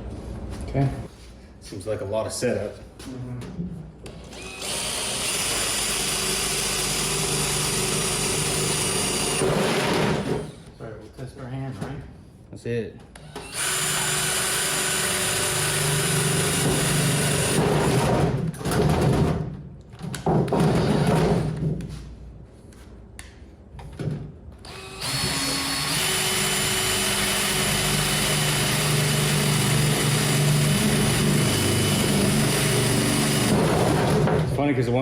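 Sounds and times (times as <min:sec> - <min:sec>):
power drill drilling sheet metal: 0:04.3 - 0:10.6, 0:13.2 - 0:18.4, 0:24.6 - 0:34.4.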